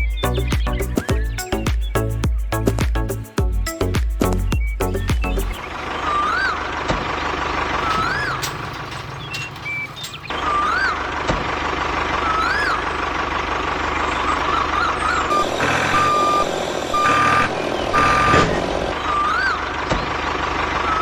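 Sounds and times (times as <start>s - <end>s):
rising and falling chirping tone: 0.0s - 5.6s
mechanical hum: 4.8s - 11.0s.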